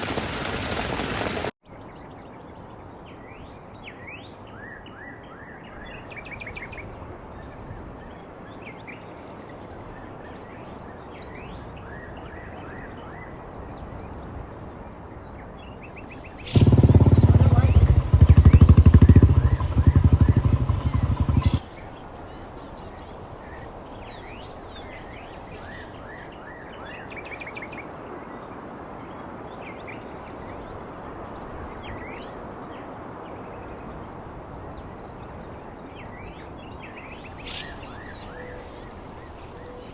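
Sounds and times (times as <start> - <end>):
birds chirping: 0.0 - 1.5, 16.1 - 26.7
motorcycle engine: 0.0 - 1.5, 16.3 - 23.1
outdoor hiss: 0.0 - 1.5.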